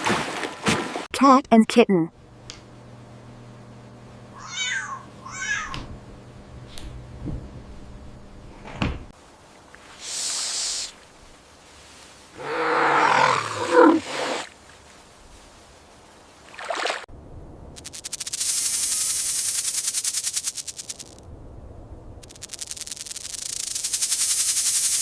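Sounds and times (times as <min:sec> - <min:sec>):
cat growling yowl: 0:12.4 - 0:14.4.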